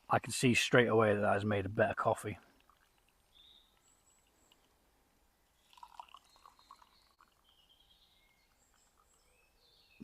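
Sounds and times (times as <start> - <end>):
woodland birdsong: 2.3 - 10.0.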